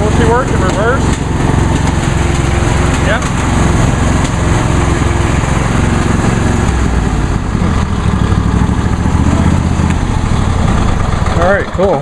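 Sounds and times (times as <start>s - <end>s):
lawn tractor engine running: 0.0s - 12.0s.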